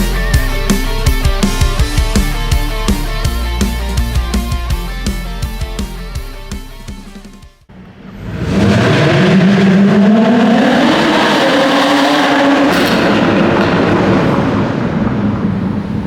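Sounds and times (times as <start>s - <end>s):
car engine accelerating hard: 7.7s - 16.0s.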